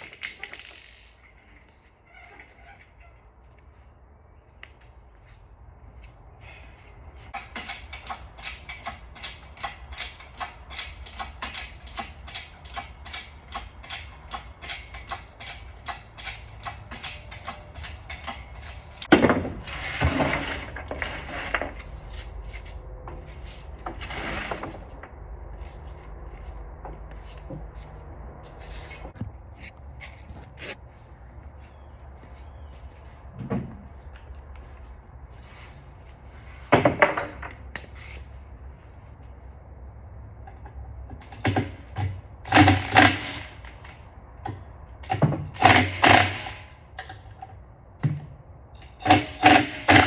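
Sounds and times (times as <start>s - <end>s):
metal clattering and scraping: 8.8s - 26.4s.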